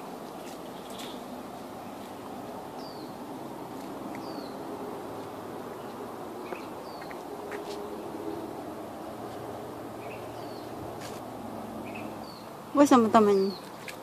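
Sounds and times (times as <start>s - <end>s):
outdoor background hum: 0.0s - 14.0s
small bird calling: 4.1s - 4.6s, 5.7s - 8.4s, 11.8s - 12.5s.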